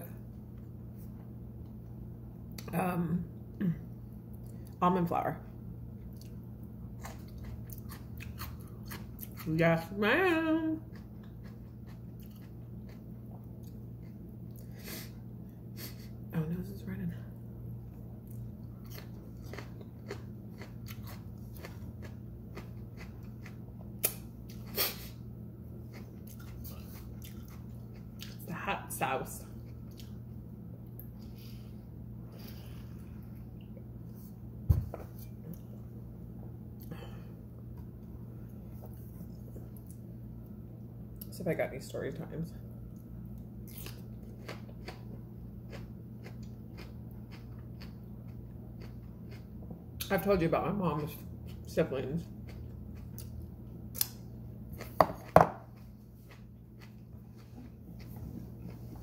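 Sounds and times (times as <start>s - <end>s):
steady low hum: 0.0s - 59.0s
chewing with wet smacks: 6.0s - 6.4s, 7.0s - 9.5s, 10.9s - 14.7s, 18.2s - 24.6s, 25.9s - 28.4s, 29.6s - 31.2s, 42.9s - 50.1s, 54.8s - 59.0s.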